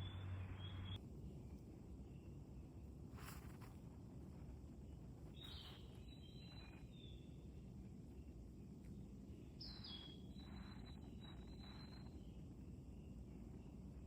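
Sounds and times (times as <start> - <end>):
faint high whistled bird calls: 0.0 - 1.0, 5.3 - 7.6, 9.3 - 14.0
low steady background noise: 0.0 - 14.0.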